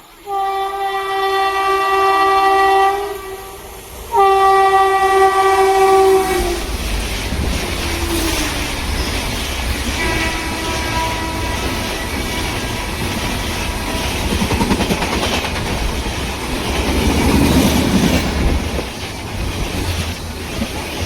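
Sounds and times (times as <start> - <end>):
electric locomotive horn: 0.1 - 6.8, 9.9 - 12.9
train wagons clattering by: 6.0 - 21.0.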